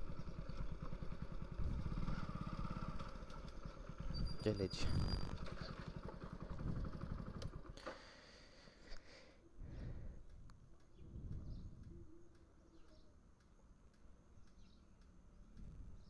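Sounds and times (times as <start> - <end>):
motorcycle engine idling: 0.0 - 8.8
soft low rumbles: 9.5 - 13.0.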